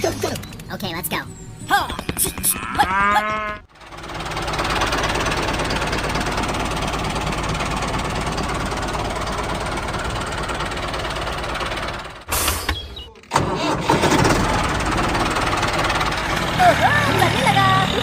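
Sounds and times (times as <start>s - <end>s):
mini tractor engine running: 3.7s - 12.3s, 13.3s - 18.0s.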